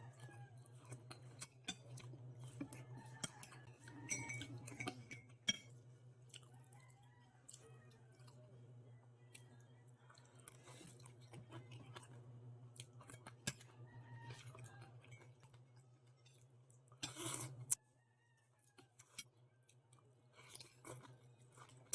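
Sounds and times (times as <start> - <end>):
person chewing food: 0.0 - 8.4, 9.3 - 17.8, 18.6 - 21.9.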